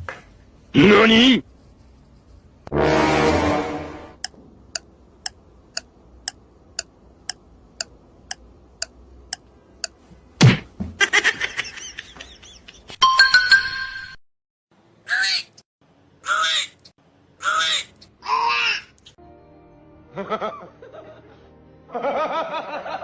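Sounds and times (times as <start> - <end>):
even ticking: 4.2 - 10.0.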